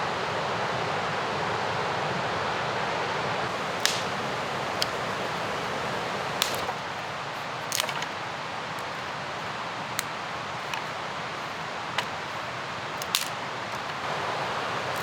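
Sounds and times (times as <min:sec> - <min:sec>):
mountain river rushing: 0:03.5 - 0:15.0
sharp short clicks: 0:03.8 - 0:14.1.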